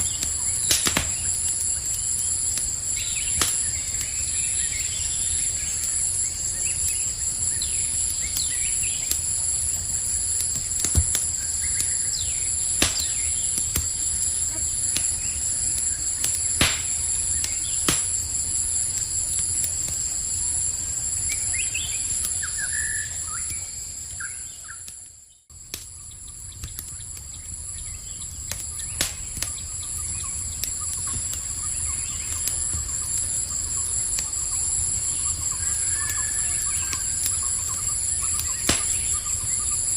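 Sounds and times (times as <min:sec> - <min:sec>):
campfire crackling: 0:00.0 - 0:39.9
crickets chirping: 0:00.0 - 0:39.9
bird chirps: 0:21.2 - 0:24.9, 0:26.0 - 0:39.9.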